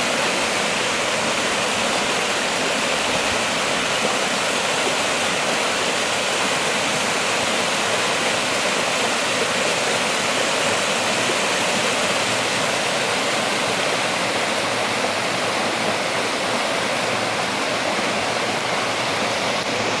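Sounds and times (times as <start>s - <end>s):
rain pouring: 0.0s - 20.0s.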